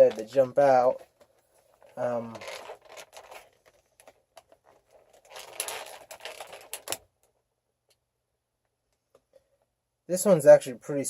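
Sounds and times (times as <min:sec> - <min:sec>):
handling clicks and rustle: 0:00.0 - 0:08.0.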